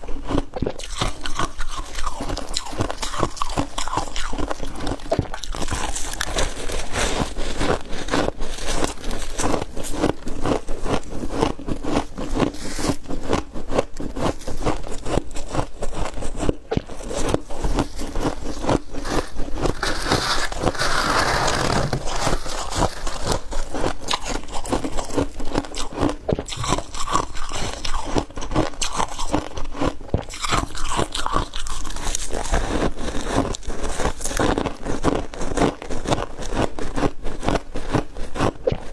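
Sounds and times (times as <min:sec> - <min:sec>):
ice being chewed: 0:00.0 - 0:38.9
rough scraping burst: 0:17.0 - 0:24.6.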